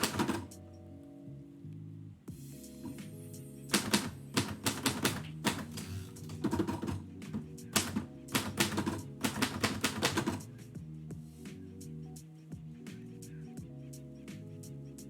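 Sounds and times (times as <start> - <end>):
typewriter keys striking: 0.0 - 0.5, 3.7 - 7.0, 7.8 - 10.4
background music with bass: 0.0 - 15.0.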